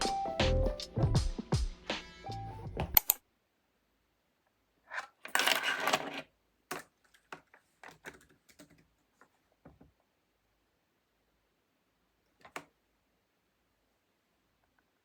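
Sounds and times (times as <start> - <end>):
background music: 0.0 - 3.0
small objects clattering: 4.9 - 7.4.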